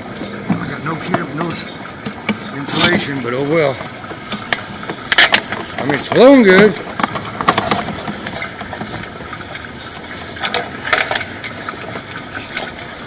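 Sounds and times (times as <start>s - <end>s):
cable reel rattling: 0.6s - 13.0s.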